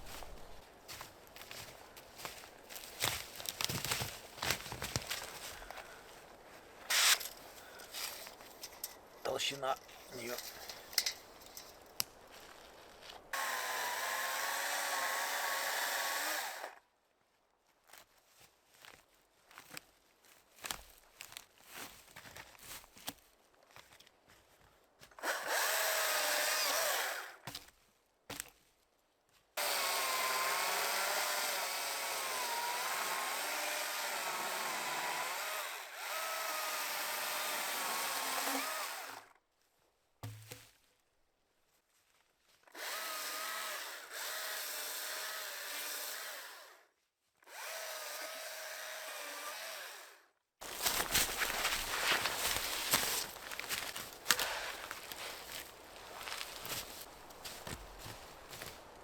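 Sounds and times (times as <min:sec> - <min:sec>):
power tool working wood: 0:13.4 - 0:16.7, 0:25.2 - 0:27.3, 0:29.6 - 0:39.2, 0:42.8 - 0:46.8, 0:47.5 - 0:50.2.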